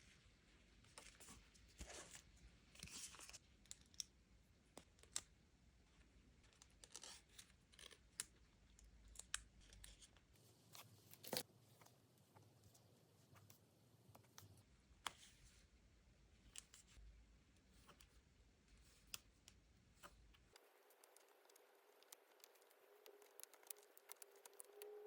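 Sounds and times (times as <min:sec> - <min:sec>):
stickers peeling with clicks: 0:18.9 - 0:25.0.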